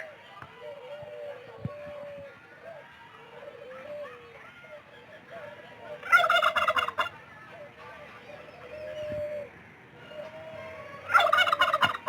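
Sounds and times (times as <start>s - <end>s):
turkey gobbling: 6.0s - 7.2s, 10.1s - 12.0s.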